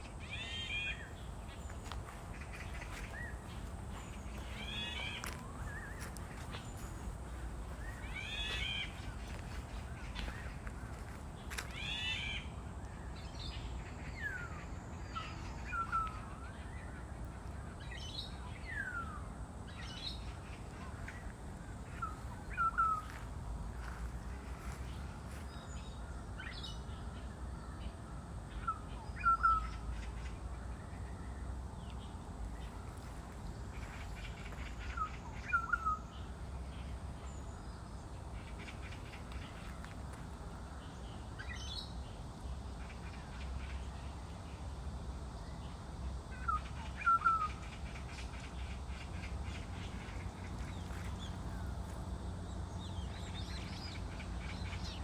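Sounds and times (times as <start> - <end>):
bird calling: 0.0 - 12.5, 20.3 - 26.6, 33.7 - 37.6
steady low rumble: 0.0 - 15.6, 16.4 - 27.0.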